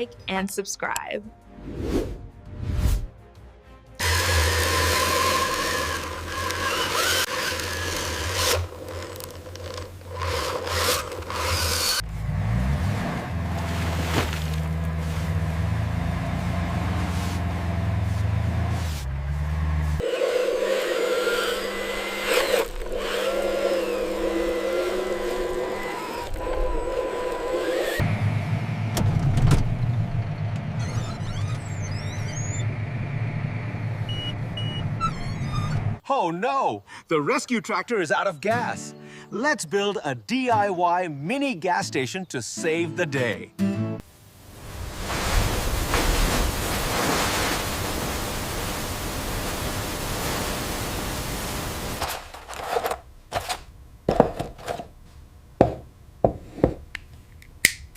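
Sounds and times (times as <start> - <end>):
low engine drone: 12.0 - 20.1, 26.3 - 35.7
scraping and rubbing noises: 13.4 - 15.6, 16.3 - 20.0.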